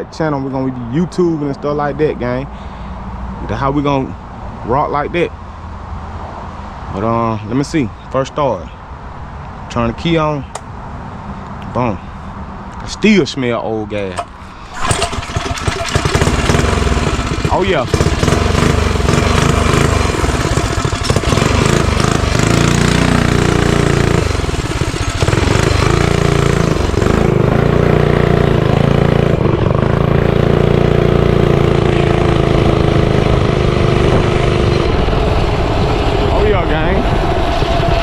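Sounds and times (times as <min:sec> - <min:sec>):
small motorbike engine running: 0:14.2 - 0:35.1.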